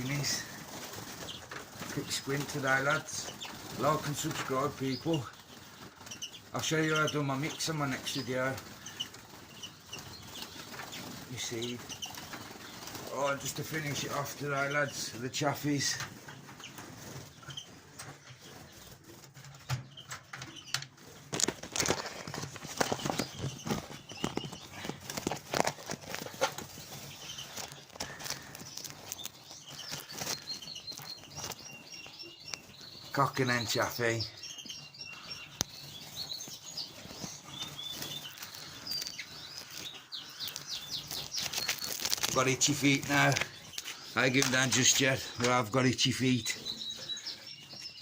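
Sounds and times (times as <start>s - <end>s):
finches chirping: 0.0s - 48.0s
small clicks of birds moving: 0.0s - 48.0s
bird wings flapping: 21.2s - 31.6s
faint bird chirps: 26.9s - 48.0s.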